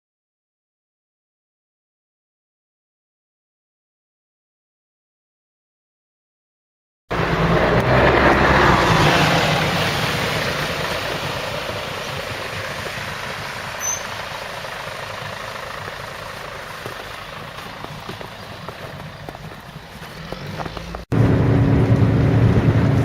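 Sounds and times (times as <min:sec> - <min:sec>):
bus diesel engine: 0:07.1 - 0:23.0
road noise: 0:07.1 - 0:23.0.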